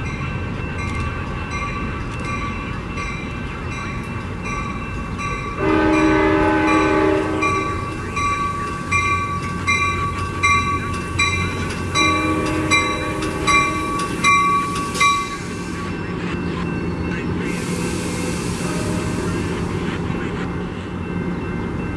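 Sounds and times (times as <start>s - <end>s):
bell ringing: 0.0s - 17.4s
train air horn blasts: 5.6s - 7.9s, 12.0s - 14.0s.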